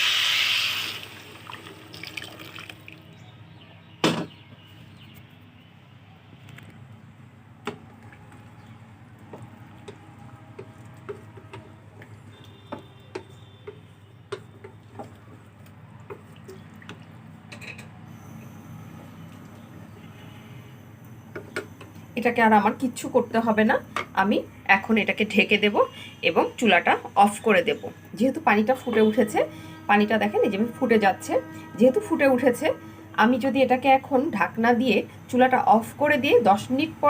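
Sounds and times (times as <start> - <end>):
pot boiling with bubbles popping: 7.7 - 17.6.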